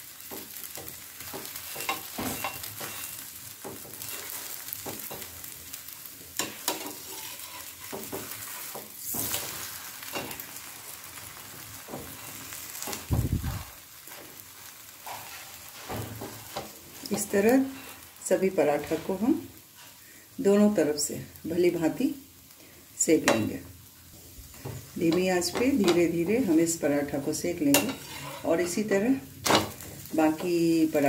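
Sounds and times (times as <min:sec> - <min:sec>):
flatbread sizzling in ghee: 0:00.0 - 0:31.0
spatula scraping a pan: 0:00.2 - 0:13.1, 0:14.0 - 0:20.1, 0:27.6 - 0:31.0.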